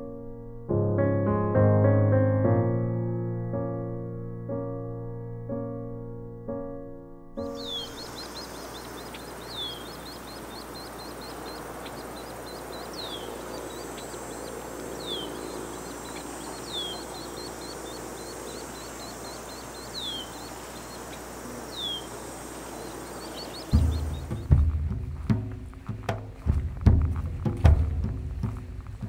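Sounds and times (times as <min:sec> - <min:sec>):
tiny high bird chirps: 0:07.4 - 0:24.5
bird call sliding downward: 0:07.5 - 0:24.5
thin steady high tone: 0:07.6 - 0:24.4.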